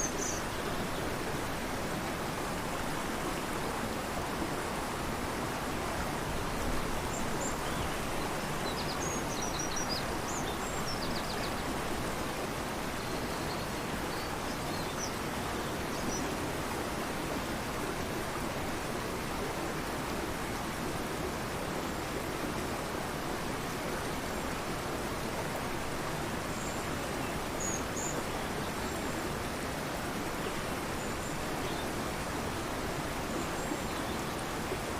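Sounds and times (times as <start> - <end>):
faint bird chirps and trills: 0.0 - 1.6, 5.9 - 16.4, 25.3 - 34.9
fast-flowing river rushing: 0.0 - 34.9.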